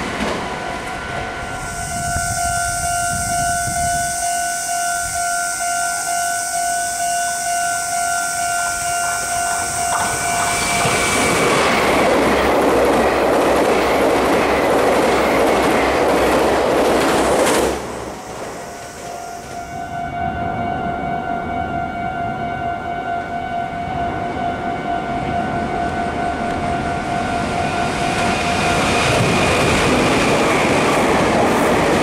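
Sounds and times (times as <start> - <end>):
level crossing bell ringing: 0.0 - 11.2
train passing with wheel noise: 0.0 - 32.0.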